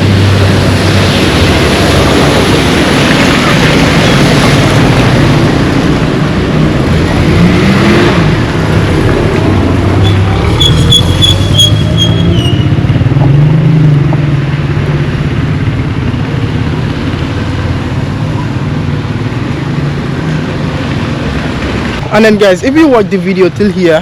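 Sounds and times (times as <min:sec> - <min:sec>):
high whistle-like tone: 0:10.0 - 0:12.7.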